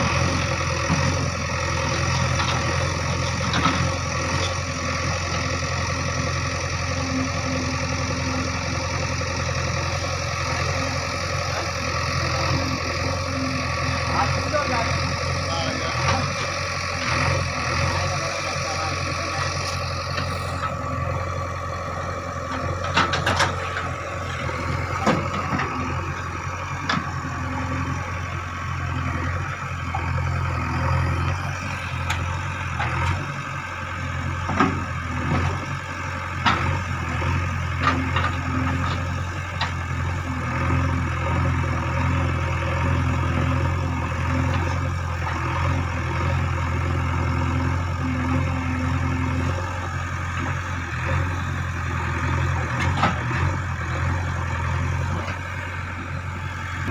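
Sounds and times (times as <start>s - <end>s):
diesel engine running: 0.0s - 56.9s
knocks and clanks: 22.8s - 23.9s, 25.0s - 25.8s.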